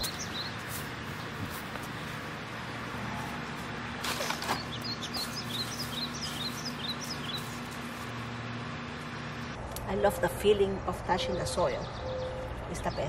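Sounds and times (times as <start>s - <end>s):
bird chirping: 0.0s - 1.4s, 4.2s - 7.9s, 11.1s - 13.0s
soil and plant rustling: 0.0s - 9.6s
steady low hum: 0.0s - 13.0s.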